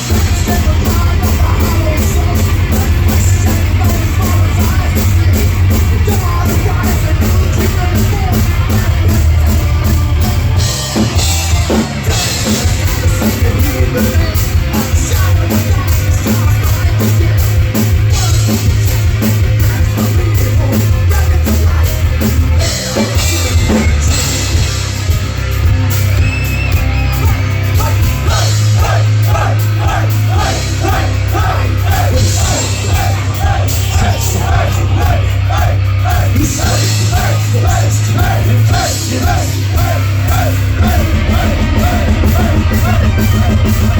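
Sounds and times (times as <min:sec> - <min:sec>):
heavy rock band playing: 0:00.0 - 0:43.9
fast repeating run of notes: 0:27.7 - 0:43.9.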